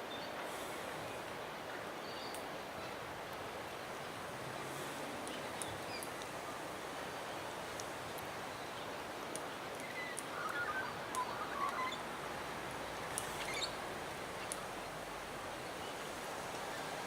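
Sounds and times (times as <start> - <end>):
steady outdoor hiss: 0.0 - 17.0
birds chirping: 9.8 - 12.2, 13.1 - 13.8.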